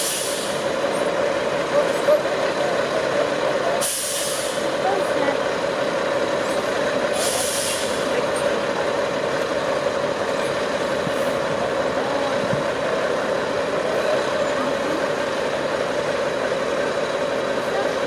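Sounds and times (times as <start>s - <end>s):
burst of hiss: 0.0s - 0.6s, 3.8s - 4.6s, 7.2s - 8.1s
diesel truck engine running: 0.0s - 18.0s.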